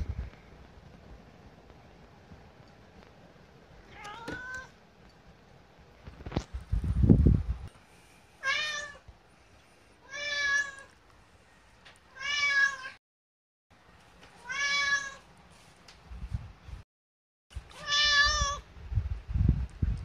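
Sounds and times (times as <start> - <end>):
cat meowing: 3.9 - 4.7, 8.4 - 9.0, 10.0 - 10.9, 12.1 - 13.0, 14.4 - 15.2, 17.7 - 18.6.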